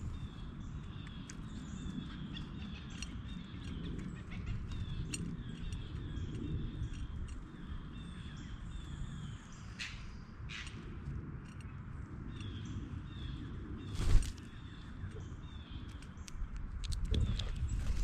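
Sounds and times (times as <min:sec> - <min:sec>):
small birds chirping: 0:00.0 - 0:18.0
steady low rumble: 0:00.0 - 0:18.0
sharp ticks: 0:00.8 - 0:08.0.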